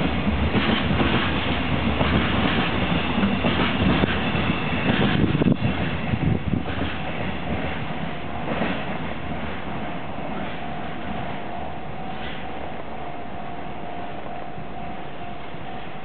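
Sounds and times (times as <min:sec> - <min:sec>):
freight train wheels clacking: 0:00.0 - 0:12.8
train cars rattling: 0:00.0 - 0:13.7.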